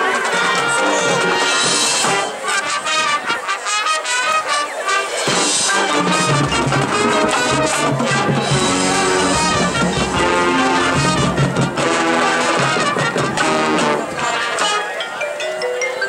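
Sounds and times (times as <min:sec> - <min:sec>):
marching band playing: 0:00.0 - 0:16.0
deep low brass and bass: 0:05.9 - 0:14.6.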